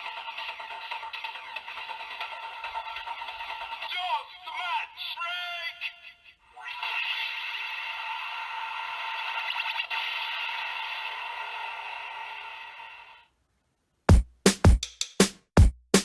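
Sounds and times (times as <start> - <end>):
drum-machine beats: 14.1 - 16.0.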